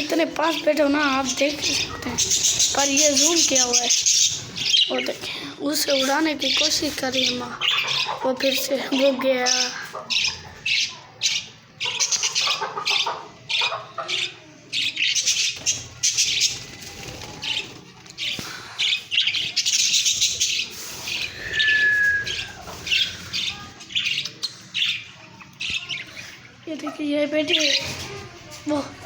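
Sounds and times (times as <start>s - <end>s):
parakeets chattering: 0.0s - 29.0s
whistled note: 21.4s - 22.5s.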